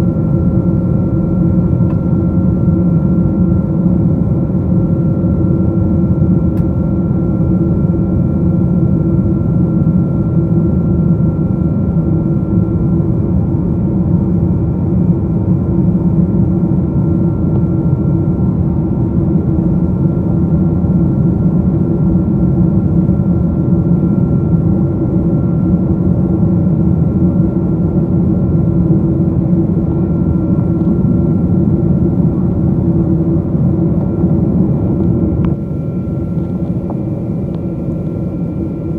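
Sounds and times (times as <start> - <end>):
jet engine roar in cabin: 0.0 - 38.9
steady hum tones: 10.3 - 38.9.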